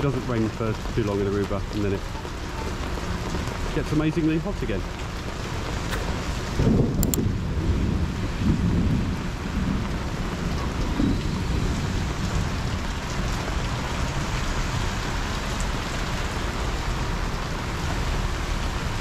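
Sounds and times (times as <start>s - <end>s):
heavy rain pouring: 0.0s - 19.0s
low thunder rumble: 6.4s - 15.3s.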